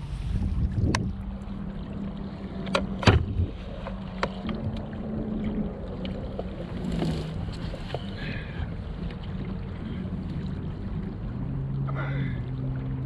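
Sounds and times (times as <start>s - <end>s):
steady low hum: 0.0s - 13.0s
wind: 0.0s - 13.0s.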